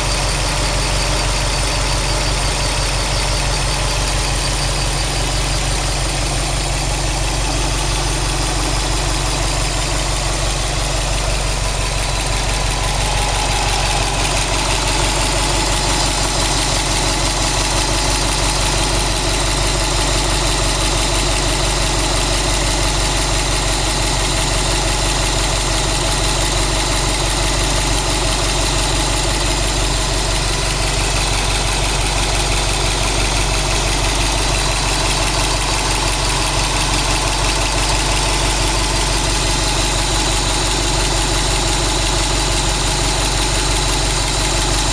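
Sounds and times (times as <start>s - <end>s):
car engine idling: 0.0s - 44.9s
engine knocking: 0.0s - 44.9s.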